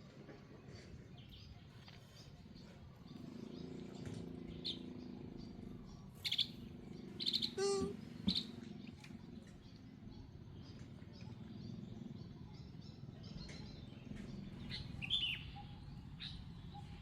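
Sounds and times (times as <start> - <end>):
high chirping animal calls: 3.0 - 8.7.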